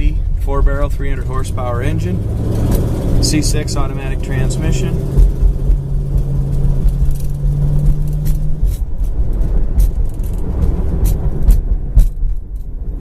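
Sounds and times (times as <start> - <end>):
car engine humming: 0.0 - 13.0
low road rumble: 0.0 - 13.0
sharp knocks: 5.0 - 12.4.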